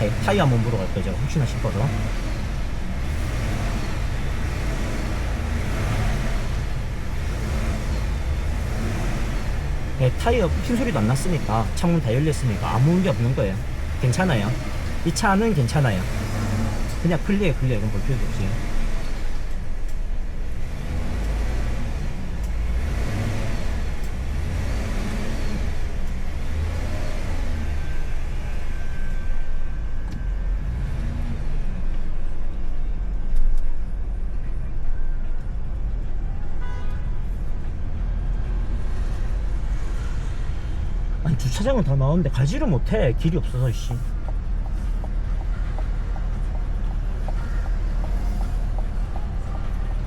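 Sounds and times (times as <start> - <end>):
low engine rumble: 0.0 - 50.0
road and tyre noise: 0.0 - 50.0.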